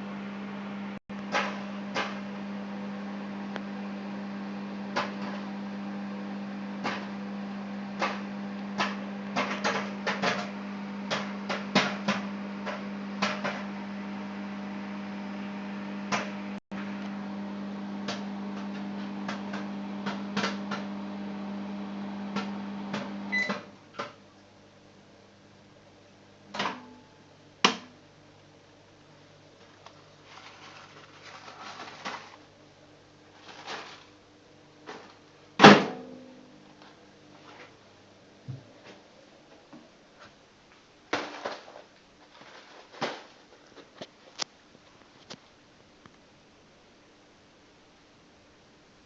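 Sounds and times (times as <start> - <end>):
microwave oven humming: 0.0 - 40.3
popcorn popping: 4.8 - 5.8, 6.7 - 13.8, 16.0 - 21.0
microwave beep: 22.6 - 23.8.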